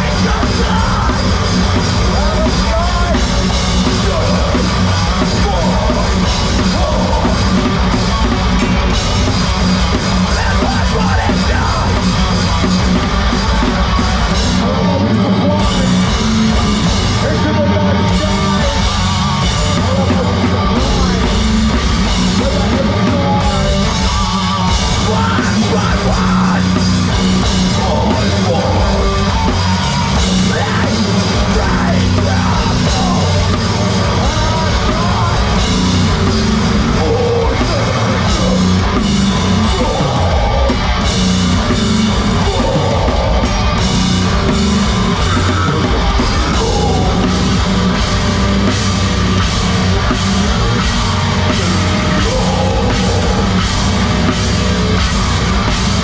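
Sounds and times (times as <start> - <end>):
bass guitar: 0.0 - 56.0
distorted guitars: 0.0 - 56.0
pounding drum kit: 0.0 - 56.0
shouted vocals: 22.2 - 49.3, 50.0 - 56.0.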